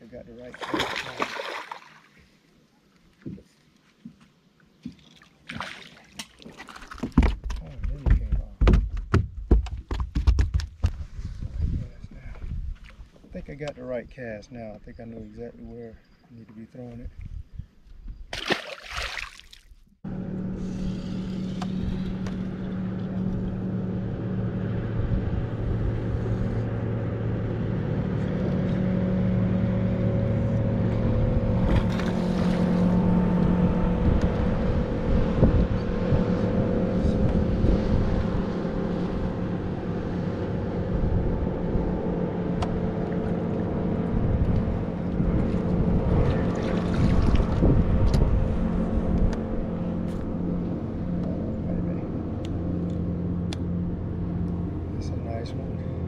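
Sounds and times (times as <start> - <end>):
outboard motor running: 20.1 - 56.0.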